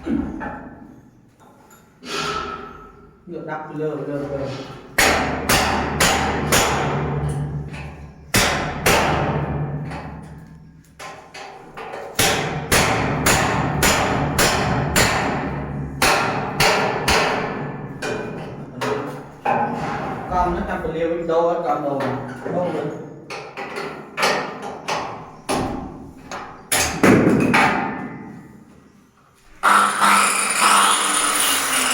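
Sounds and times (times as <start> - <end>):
hammer striking steel: 5.0 - 7.5, 12.2 - 18.3.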